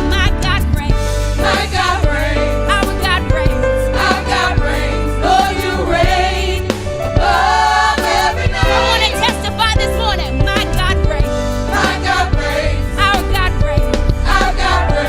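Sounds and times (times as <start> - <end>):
steady bass: 0.0 - 15.0
held chords: 0.9 - 15.0
voices singing with vibrato: 1.4 - 9.7, 11.6 - 15.0.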